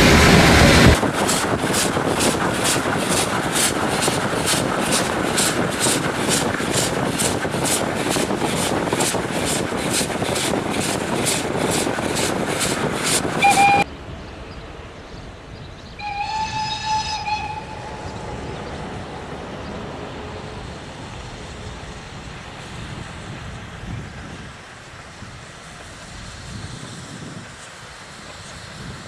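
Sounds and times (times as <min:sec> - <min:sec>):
low rumble: 0:00.0 - 0:01.7
steam locomotive exhaust chuffing: 0:00.0 - 0:13.9, 0:16.0 - 0:29.0
short whistle blast: 0:13.4 - 0:13.8.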